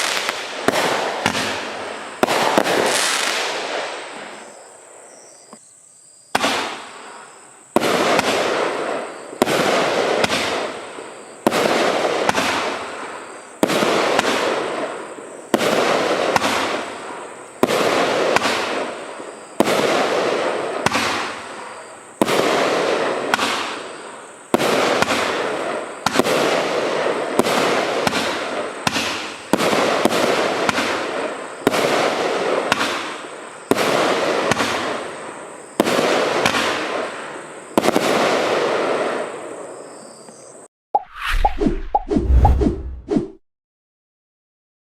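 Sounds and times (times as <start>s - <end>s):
firework bangs: 0.0s - 4.0s, 6.4s - 6.8s.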